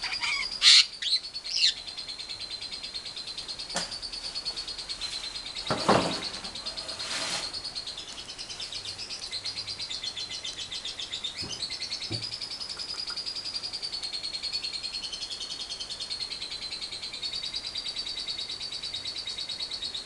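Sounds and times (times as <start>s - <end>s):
harsh bird calls: 0.0s - 13.1s
lovebird high-pitched trill: 0.0s - 20.0s.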